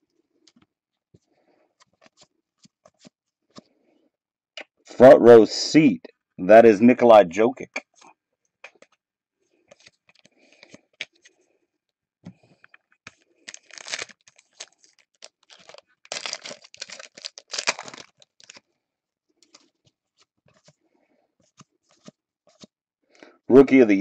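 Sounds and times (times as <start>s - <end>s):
wrappers tearing and crinkling: 13.4s - 18.6s.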